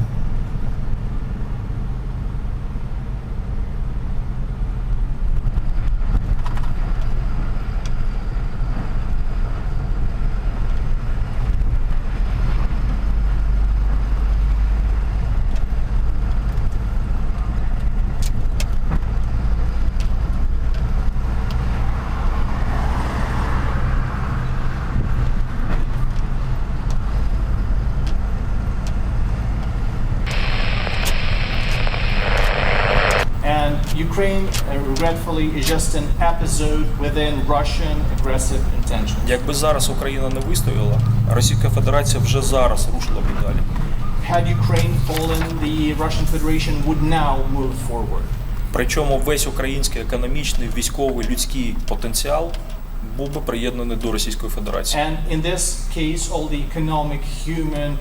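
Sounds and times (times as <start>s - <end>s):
truck diesel engine running: 30.3s - 51.8s.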